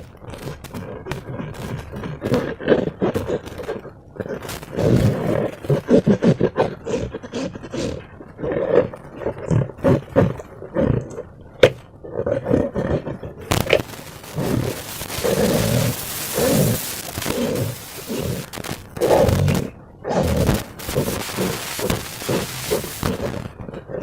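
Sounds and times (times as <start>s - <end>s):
hiss: 13.5s - 19.6s, 20.2s - 23.5s
slime squelching: 13.5s - 23.6s.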